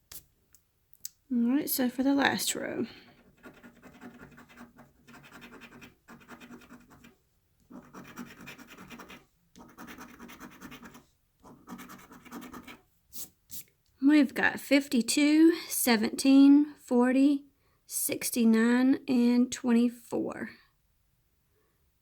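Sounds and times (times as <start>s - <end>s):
lottery ticket being scratched: 3.0s - 7.1s, 7.7s - 12.8s.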